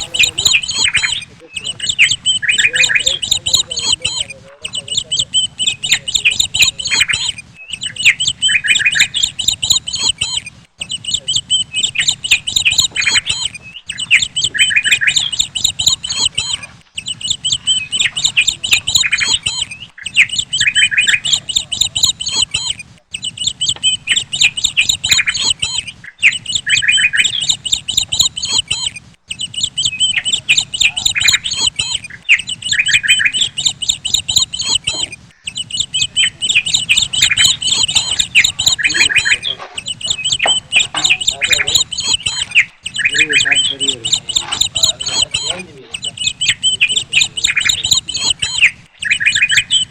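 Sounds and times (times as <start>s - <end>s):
birds chirping and squawking: 0.0s - 49.9s.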